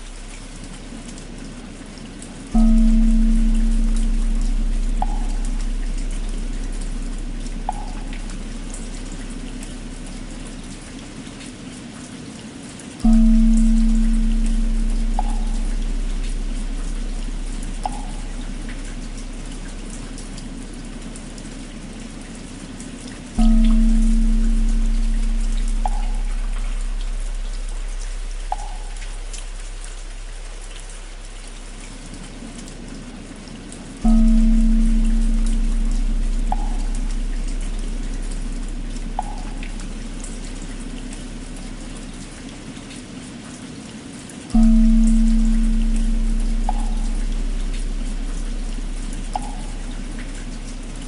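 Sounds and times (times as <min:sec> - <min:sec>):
steady rain: 0:00.0 - 0:51.0
temple bell hum: 0:02.6 - 0:10.7, 0:13.0 - 0:22.3, 0:23.4 - 0:31.1, 0:34.0 - 0:42.2, 0:44.5 - 0:51.0.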